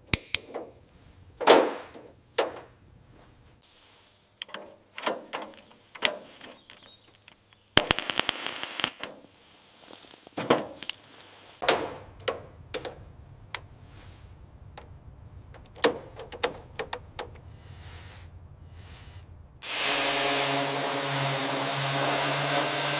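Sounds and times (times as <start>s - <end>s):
low steady hum: 11.0s - 22.9s
fast rattle of clicks: 14.6s - 17.6s.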